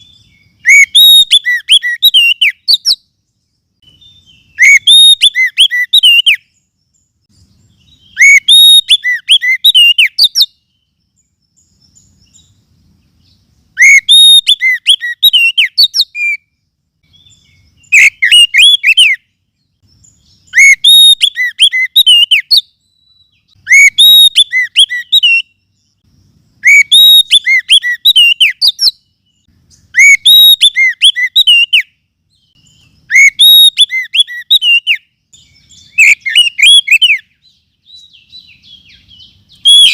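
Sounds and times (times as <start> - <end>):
bird whistling song: 0.0 - 39.9.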